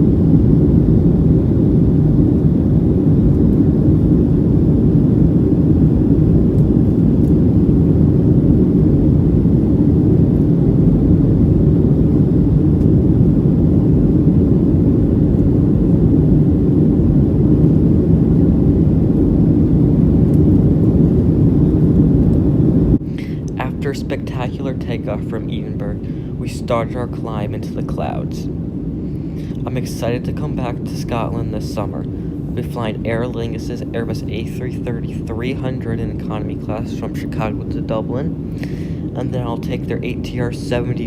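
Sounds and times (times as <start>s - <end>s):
jet engines in cabin rumbling: 0.0s - 41.0s.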